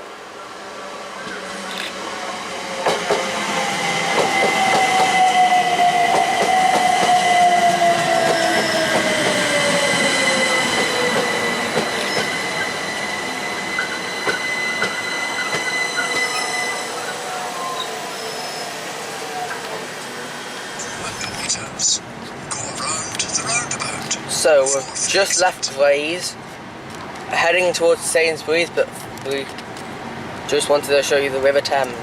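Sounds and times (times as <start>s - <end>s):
train passing: 0.0s - 32.0s
high squeal: 4.3s - 19.7s.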